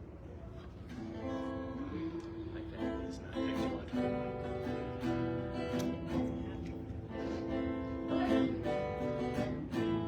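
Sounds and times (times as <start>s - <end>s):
acoustic guitar strumming: 2.7s - 10.0s.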